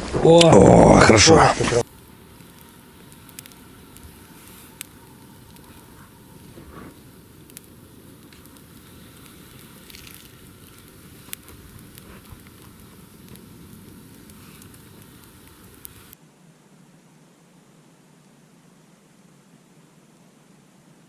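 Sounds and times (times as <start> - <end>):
campfire crackling and popping: 0.0 - 16.2.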